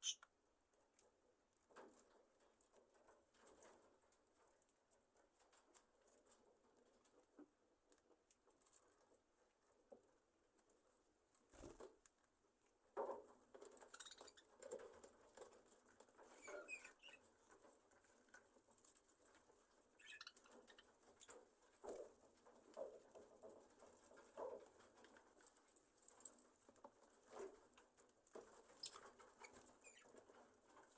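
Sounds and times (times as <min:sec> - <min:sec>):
soft bird chirps: 0:00.0 - 0:00.2, 0:13.9 - 0:14.5, 0:20.0 - 0:20.9
budgerigars rustling and scratching: 0:00.0 - 0:12.2, 0:12.9 - 0:30.9.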